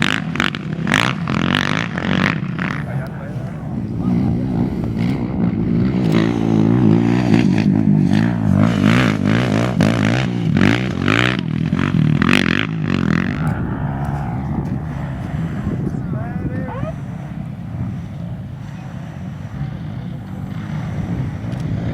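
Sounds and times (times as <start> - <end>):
race engine revving: 0.0 - 21.9
gusts of noise: 12.2 - 21.9.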